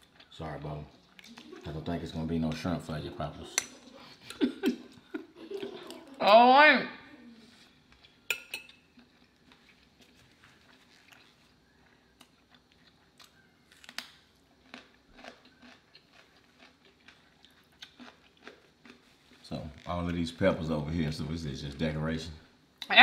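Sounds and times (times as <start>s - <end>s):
person chewing food: 0.0s - 1.8s, 7.2s - 20.2s.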